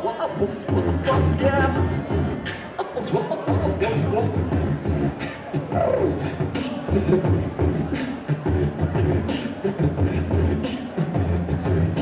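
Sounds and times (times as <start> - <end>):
person rapping: 0.0 - 12.0
beatboxing bass and hi-hat: 0.1 - 12.0.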